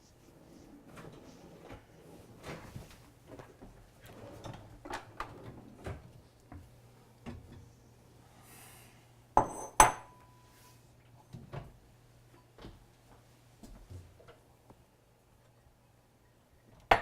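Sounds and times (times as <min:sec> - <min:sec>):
dishes clinking down: 0:09.4 - 0:10.3.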